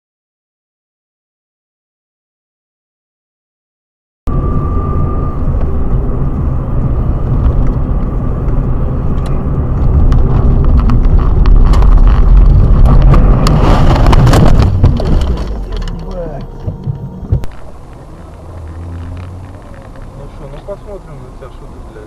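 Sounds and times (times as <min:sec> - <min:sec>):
car engine and road rumble: 0:04.3 - 0:22.0
sharp knocks and clatter: 0:09.2 - 0:17.5.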